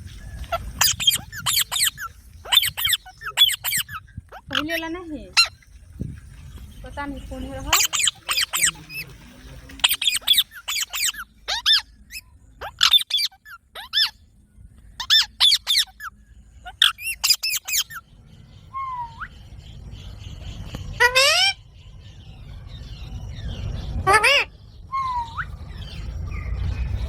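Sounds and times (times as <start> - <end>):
parrots screeching: 0.5 - 5.6, 7.7 - 9.1, 9.8 - 14.2, 15.0 - 18.0, 21.0 - 21.6, 24.0 - 25.6.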